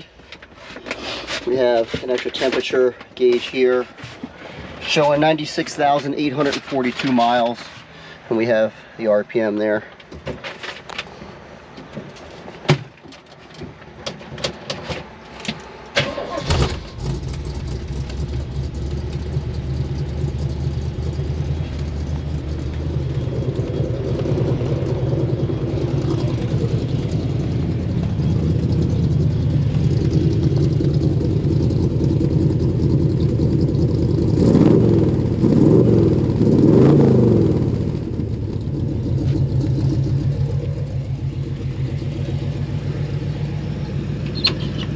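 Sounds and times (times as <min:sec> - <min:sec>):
car engine idling: 0:16.1 - 0:44.9
engine revving: 0:16.1 - 0:44.9.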